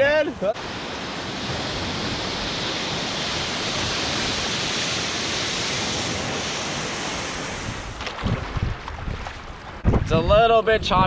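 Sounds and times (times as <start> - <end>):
ocean surf rushing: 0.0 - 8.6.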